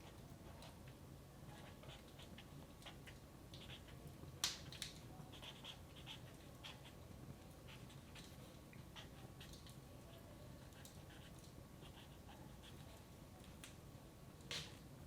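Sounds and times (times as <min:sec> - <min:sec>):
wood fire crackling: 0:02.0 - 0:05.4, 0:13.2 - 0:15.0.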